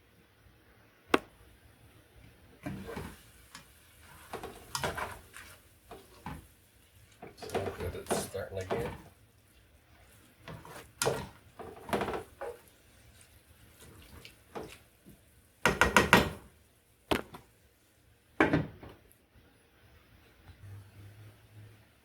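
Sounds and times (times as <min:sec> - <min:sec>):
utensil scraping a skillet: 0:02.6 - 0:15.3.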